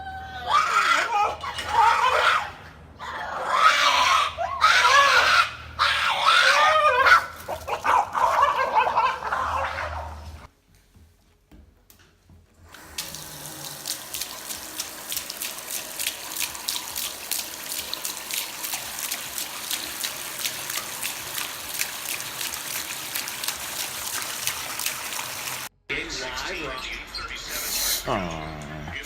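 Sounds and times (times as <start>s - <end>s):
water running with splashes: 12.8s - 25.7s.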